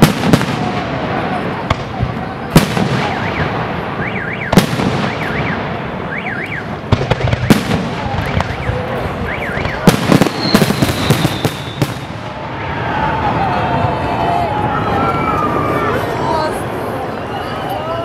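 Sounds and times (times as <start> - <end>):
fireworks bursting with sharp bangs: 0.0 - 12.8.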